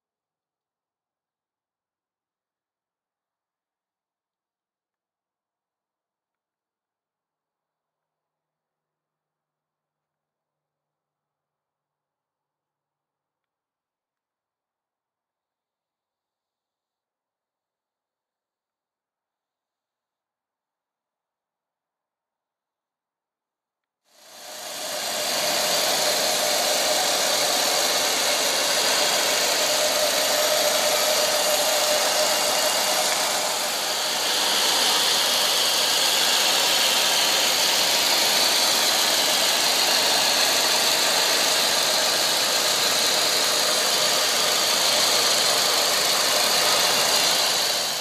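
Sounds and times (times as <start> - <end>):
car engine idling: 24.2 - 48.0.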